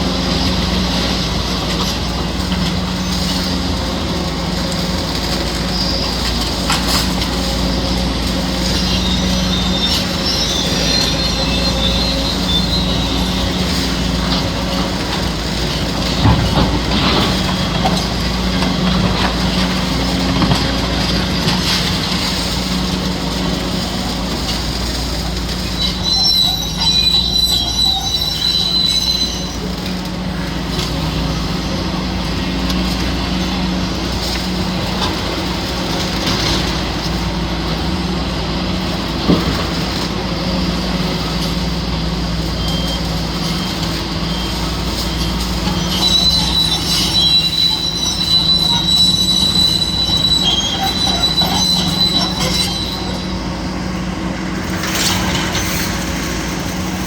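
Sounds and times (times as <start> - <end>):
scraping and knocking clatter: 0.0 - 30.1, 42.3 - 57.0
diesel engine running: 0.0 - 57.0
high metallic squeal: 0.1 - 37.1, 42.3 - 57.0.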